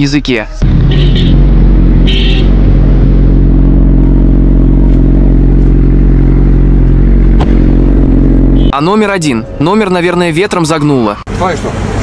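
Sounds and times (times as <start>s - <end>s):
motorcycle engine running: 0.6s - 8.7s.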